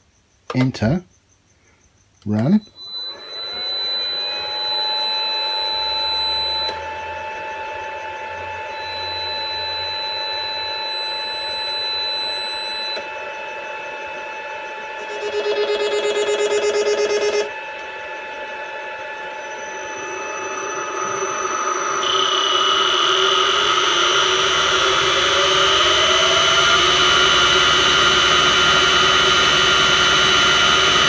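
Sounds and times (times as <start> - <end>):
electric motor whine: 2.7 - 31.0
pulsing warbling tone: 14.2 - 17.6.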